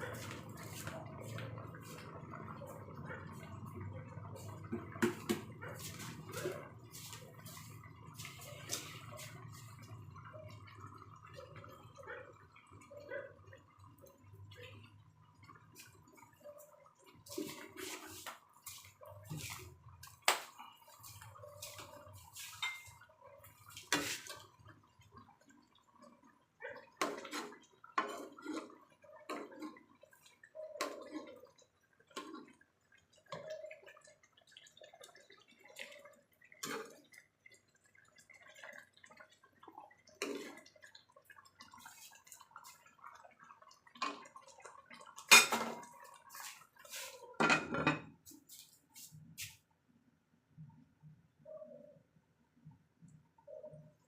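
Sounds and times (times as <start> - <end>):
wet liquid sounds: 0.0 - 47.4
kitchenware clinking: 22.6 - 23.0, 47.4 - 48.2.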